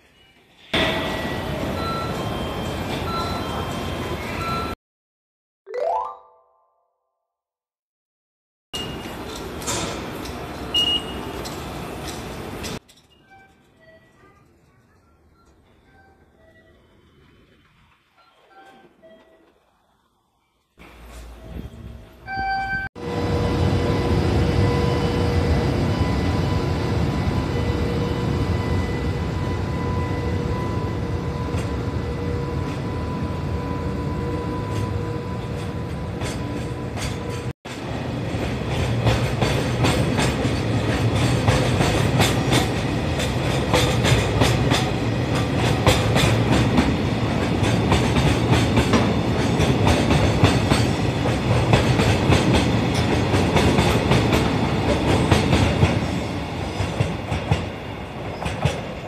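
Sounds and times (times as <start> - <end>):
train whine: 23.0 - 59.0
train rattle: 34.7 - 59.0.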